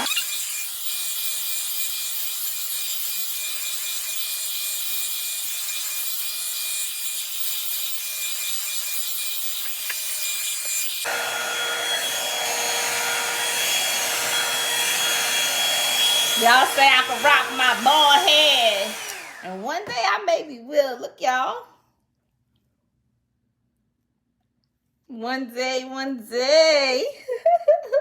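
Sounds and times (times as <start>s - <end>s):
hair dryer running: 11.0s - 19.9s.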